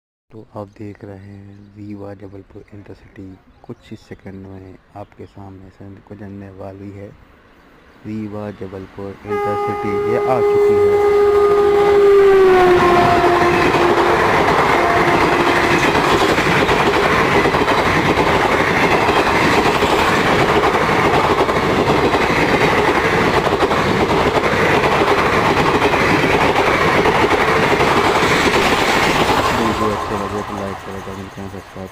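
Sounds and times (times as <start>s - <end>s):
train horn: 9.2s - 16.5s
train wheels clattering over rails: 13.0s - 31.9s.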